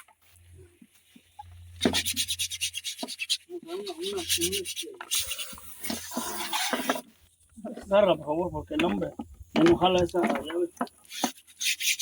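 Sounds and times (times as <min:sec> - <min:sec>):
hand scrubbing rubbing strokes: 0:00.0 - 0:07.2.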